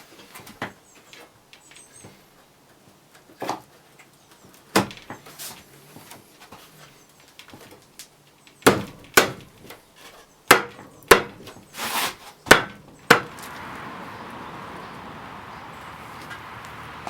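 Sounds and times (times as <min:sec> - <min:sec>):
hiss: 0:13.0 - 0:17.0.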